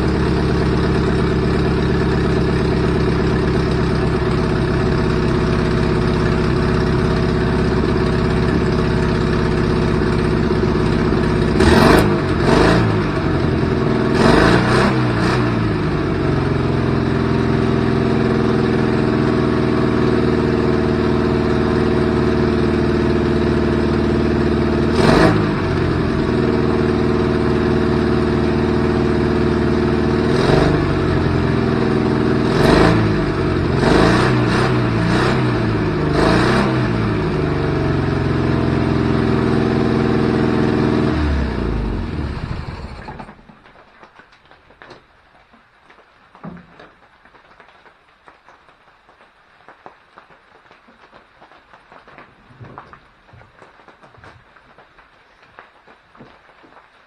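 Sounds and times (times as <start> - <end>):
car engine revving: 0.0 - 43.3.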